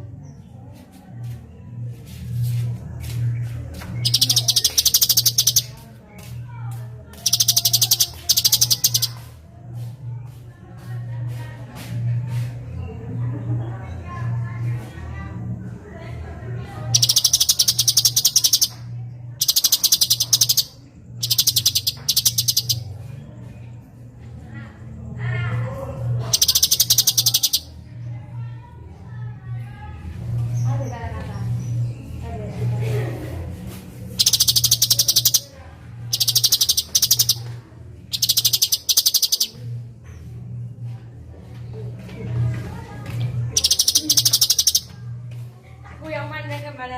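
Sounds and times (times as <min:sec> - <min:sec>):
songbird chattering trills: 0:04.0 - 0:05.8, 0:07.1 - 0:09.3, 0:16.9 - 0:22.9, 0:26.3 - 0:27.8, 0:34.2 - 0:35.5, 0:36.1 - 0:37.5, 0:38.1 - 0:39.6, 0:43.6 - 0:45.0.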